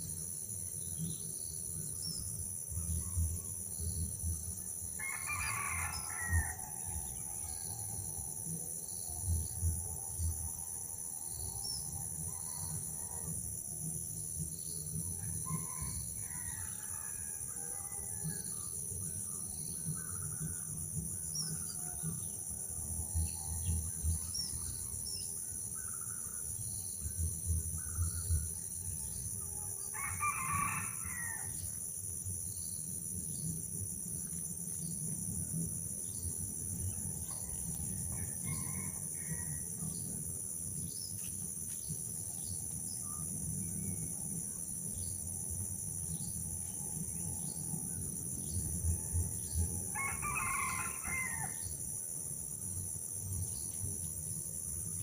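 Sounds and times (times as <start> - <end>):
rooster crowing: 5.0 - 6.9, 29.9 - 31.5, 38.1 - 39.7, 49.9 - 51.6.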